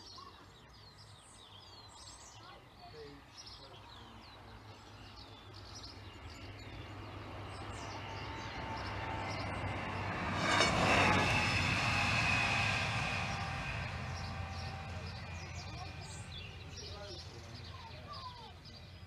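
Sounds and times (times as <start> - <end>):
low engine hum: 5.4 - 19.0
diesel railcar passing: 6.4 - 19.0.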